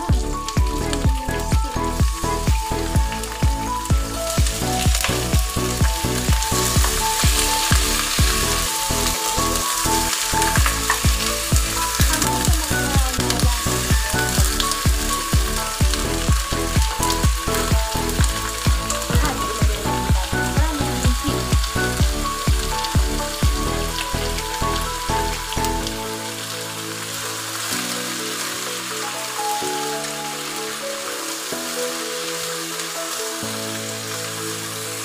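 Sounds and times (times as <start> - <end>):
background music with a beat: 0.0 - 26.0
chicken sizzling in a pot: 4.5 - 20.5
wooden spoon stirring: 5.0 - 15.0.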